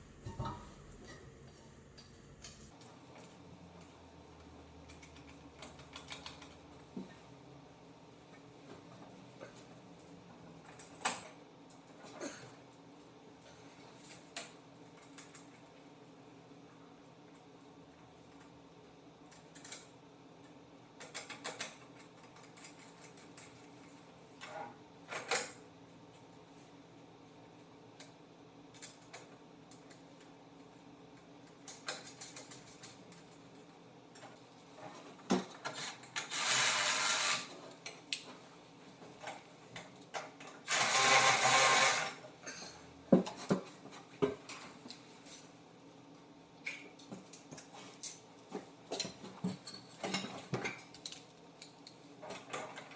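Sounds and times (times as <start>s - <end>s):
clinks of nuts and bolts: 48.9s - 52.9s.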